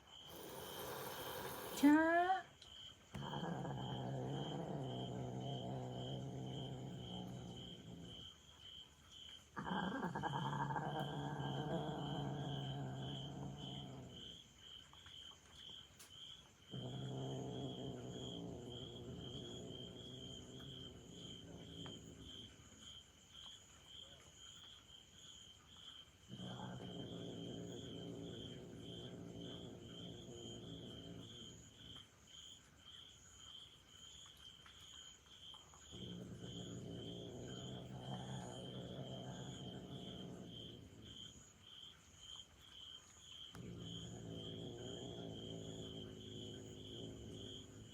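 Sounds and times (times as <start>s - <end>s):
cat growling: 0.0s - 2.4s, 3.1s - 8.4s, 9.6s - 14.4s, 16.7s - 22.6s, 26.3s - 32.0s, 35.9s - 41.5s, 43.5s - 47.9s
insect chirping: 0.0s - 47.9s.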